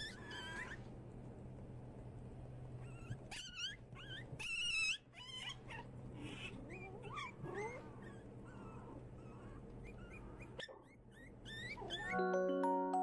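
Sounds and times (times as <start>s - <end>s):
puppies yipping and whining: 0.0s - 0.9s, 2.8s - 12.2s.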